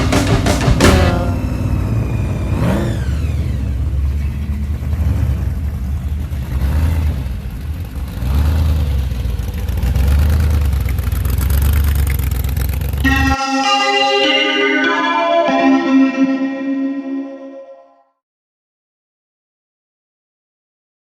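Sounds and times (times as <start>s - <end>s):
car engine revving: 1.3s - 13.0s.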